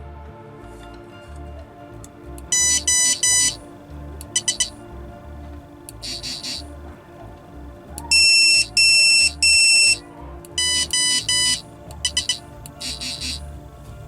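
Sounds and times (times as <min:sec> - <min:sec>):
background music with beat: 0:01.6 - 0:14.0
electronic beeps: 0:02.5 - 0:03.6, 0:04.4 - 0:04.8, 0:06.0 - 0:06.7, 0:08.1 - 0:10.0, 0:10.6 - 0:13.5.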